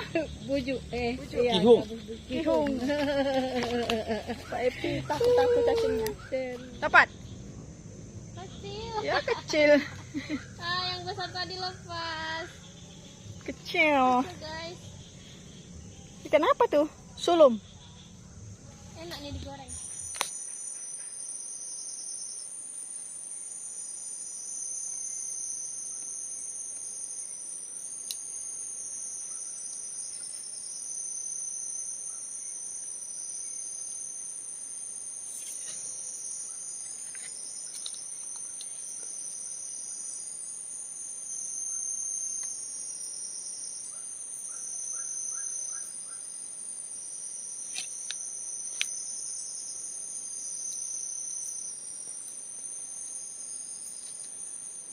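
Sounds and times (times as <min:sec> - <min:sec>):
insect singing in pulsing phrases: 0:00.0 - 0:03.0, 0:08.2 - 0:09.8, 0:10.4 - 0:15.2
high-pitched insect shrill: 0:19.5 - 0:54.9.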